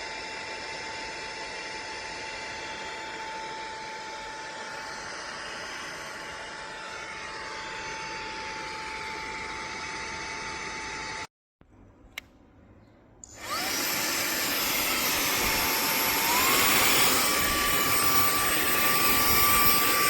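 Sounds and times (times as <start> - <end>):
handheld vacuum cleaner running: 0.0 - 11.3, 13.3 - 20.0.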